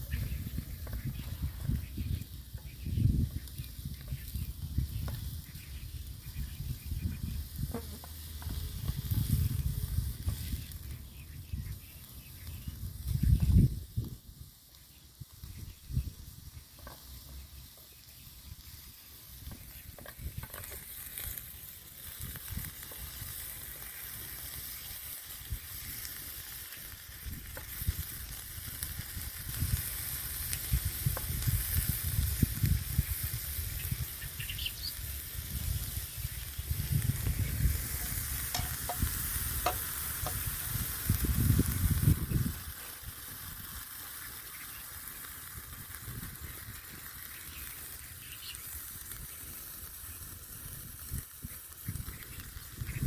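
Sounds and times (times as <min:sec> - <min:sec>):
meat and onions sizzling in pan: 0:00.0 - 0:53.0
utensil scraping and knocking pan: 0:37.9 - 0:40.4.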